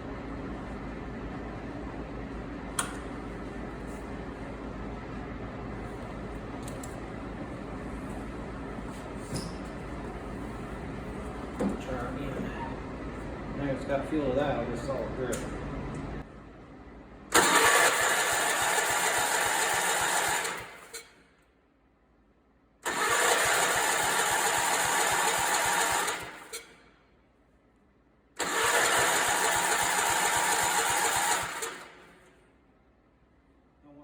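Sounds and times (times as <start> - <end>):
tractor engine cranking by starter: 17.3 - 21.1, 22.8 - 26.7, 28.4 - 32.2.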